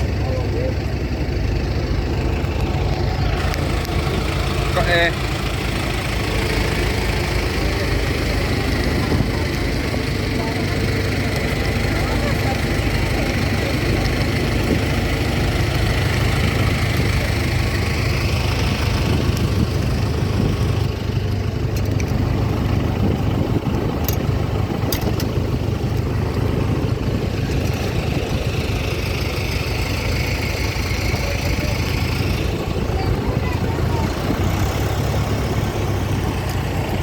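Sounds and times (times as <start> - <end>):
vehicle engine rumbling: 0.0 - 37.0.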